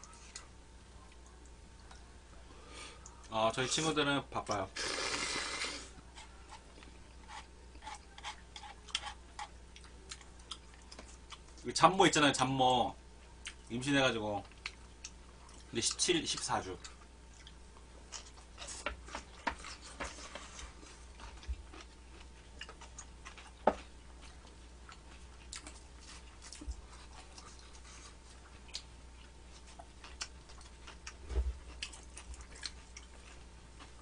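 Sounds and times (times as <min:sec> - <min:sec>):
chewing clicks and smacks: 0:21.2 - 0:27.8, 0:28.4 - 0:34.0.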